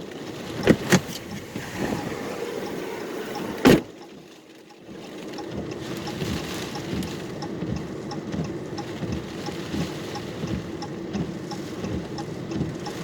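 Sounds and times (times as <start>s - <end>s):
car door latch clicks: 0.6s - 3.9s
car door thumping shut: 0.6s - 3.9s.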